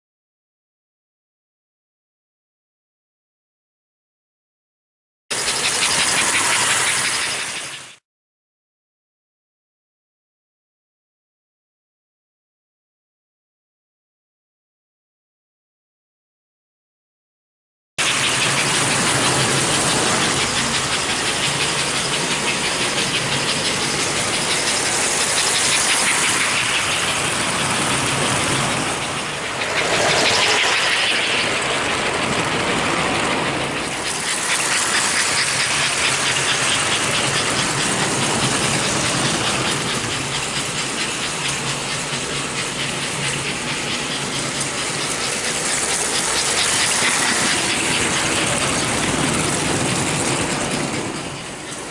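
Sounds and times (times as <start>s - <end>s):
toy train running on track: 5.3s - 8.0s, 18.0s - 51.9s.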